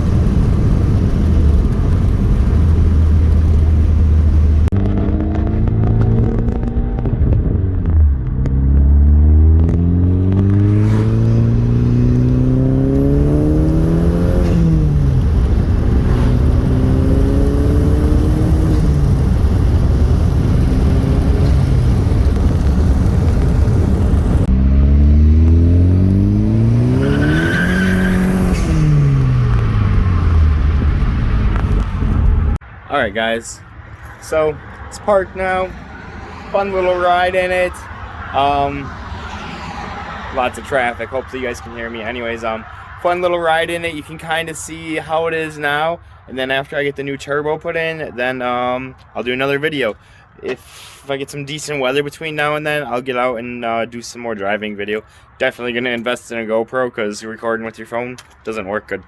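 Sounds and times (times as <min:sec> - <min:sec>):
car engine accelerating through gears: 0:00.1 - 0:32.6.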